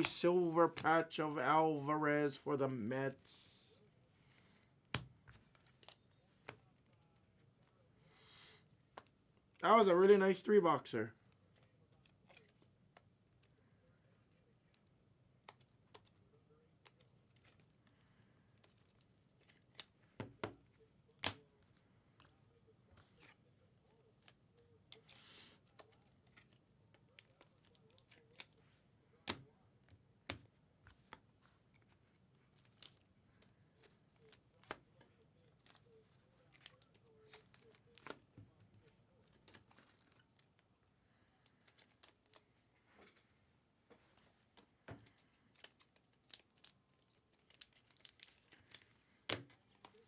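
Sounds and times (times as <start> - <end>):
packaging rustle: 45.1 - 49.0.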